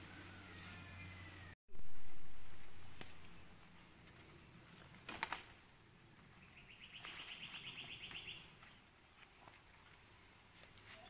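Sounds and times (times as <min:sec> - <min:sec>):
leaves being plucked by hand: 0:01.8 - 0:06.0.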